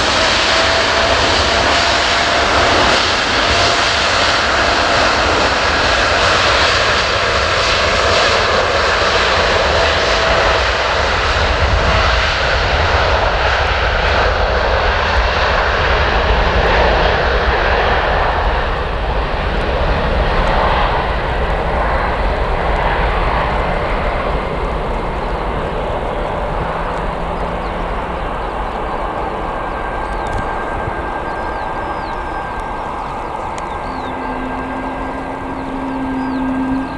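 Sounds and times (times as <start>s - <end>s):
jet engines roaring: 0.0s - 36.9s.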